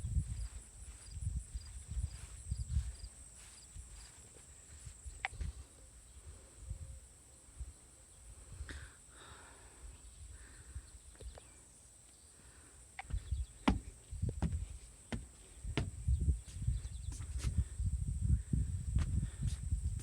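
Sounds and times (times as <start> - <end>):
wind on microphone: 0.0 - 3.1, 13.1 - 20.0
sharp knocks: 13.1 - 16.0.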